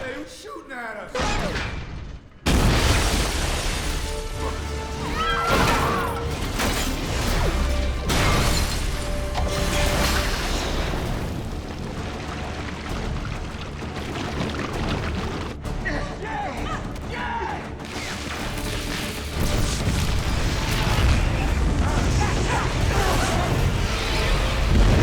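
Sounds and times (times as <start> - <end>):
dramatic orchestral music: 2.4 - 25.0.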